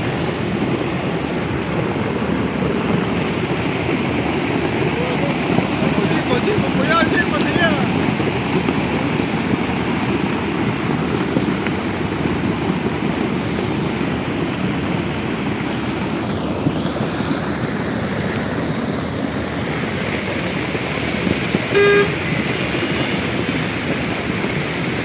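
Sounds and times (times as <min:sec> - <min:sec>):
water rushing: 0:00.0 - 0:25.0
short pitched tone: 0:21.7 - 0:22.2.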